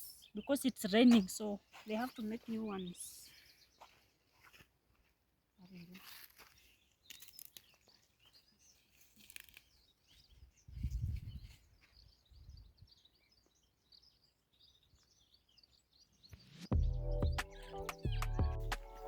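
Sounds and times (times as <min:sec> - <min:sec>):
birds chirping faintly: 0:00.0 - 0:19.0
plants rustling and snapping: 0:06.1 - 0:07.9, 0:09.0 - 0:09.8.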